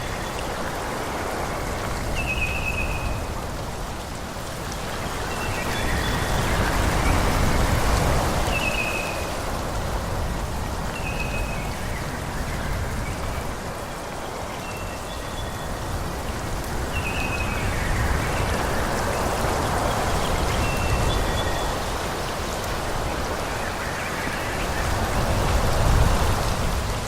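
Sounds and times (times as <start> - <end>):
wind blowing through trees: 0.0 - 27.0.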